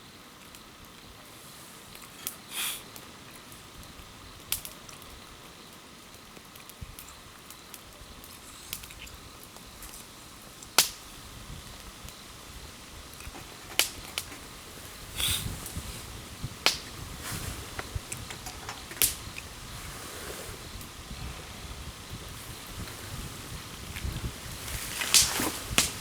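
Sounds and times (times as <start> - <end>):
campfire crackling: 0.0 - 26.0
sharp pops of fire: 4.4 - 5.2, 6.0 - 21.0, 22.0 - 26.0
short rustling: 13.2 - 21.0, 22.3 - 26.0.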